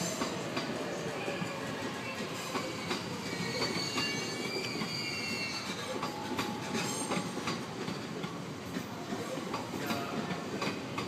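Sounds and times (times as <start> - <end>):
train wheels squealing: 0.0 - 8.2
train rumbling: 0.0 - 11.0.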